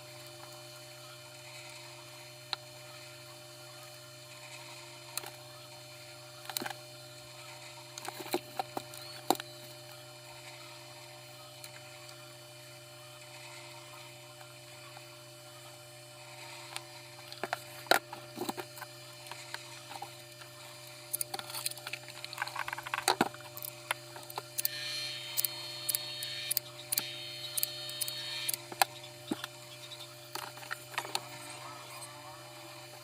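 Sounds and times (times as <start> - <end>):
high whine: 15.6 - 33.0.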